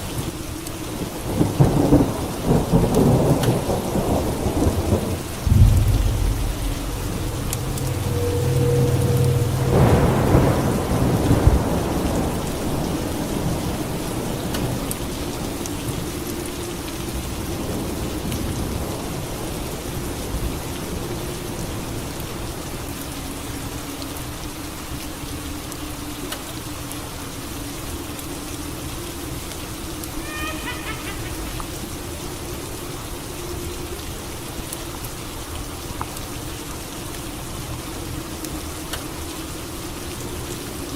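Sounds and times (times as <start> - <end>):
steady rain: 0.0 - 40.9
thunderclap: 1.8 - 12.8.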